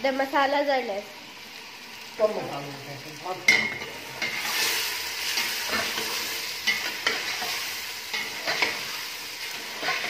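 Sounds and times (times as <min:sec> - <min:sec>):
chicken sizzling in oil: 0:00.0 - 0:10.0
spatula scraping a pot: 0:04.2 - 0:10.0.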